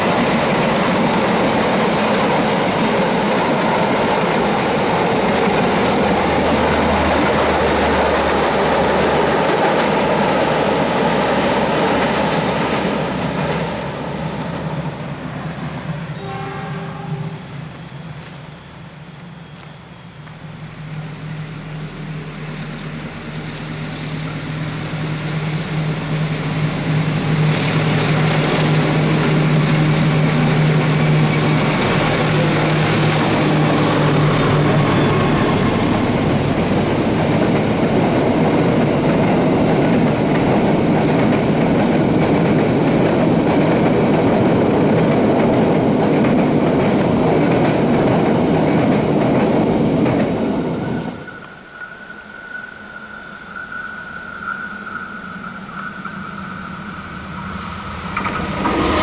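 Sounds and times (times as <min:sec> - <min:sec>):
locomotive engine drone: 0:00.0 - 0:59.0
train wheels rumbling and clattering: 0:00.0 - 0:59.0.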